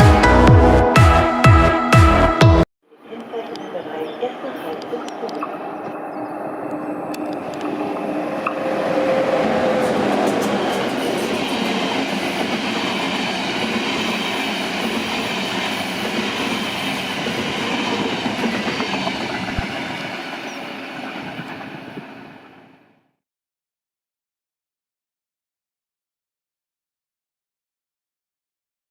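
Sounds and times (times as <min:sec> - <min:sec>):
train running by on track: 0:03.2 - 0:23.0.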